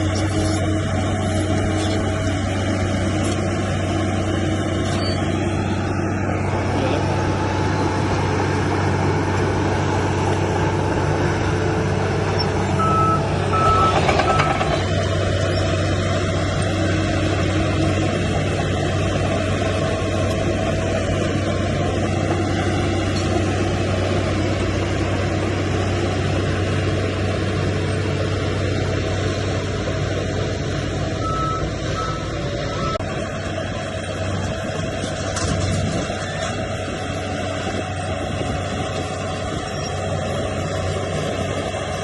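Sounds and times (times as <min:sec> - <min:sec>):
diesel engine running: 0:00.0 - 0:42.0
reversing alarm beeps: 0:12.8 - 0:14.7, 0:31.2 - 0:33.1.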